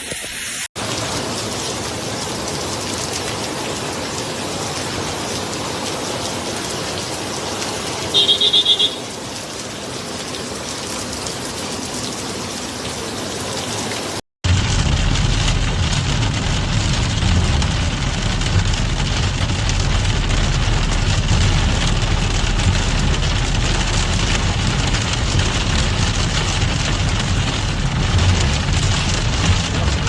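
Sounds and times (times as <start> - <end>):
vehicle engine rumbling: 14.4 - 30.0.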